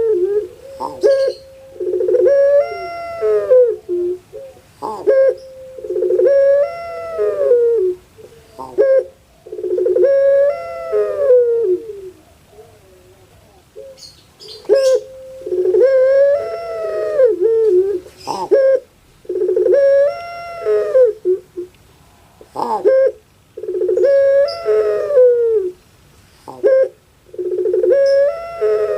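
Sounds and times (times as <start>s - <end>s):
dove cooing: 0.0s - 21.7s, 22.4s - 25.8s, 26.4s - 28.9s.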